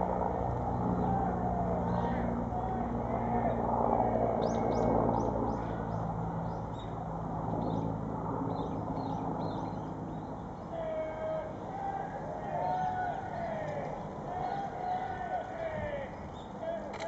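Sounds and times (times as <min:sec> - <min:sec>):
small birds chirping: 0:04.4 - 0:10.9, 0:16.0 - 0:16.8.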